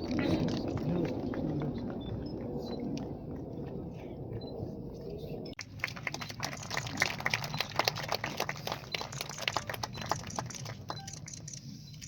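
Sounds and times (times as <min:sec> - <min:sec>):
small crowd clapping: 0:00.0 - 0:03.1, 0:05.6 - 0:11.5.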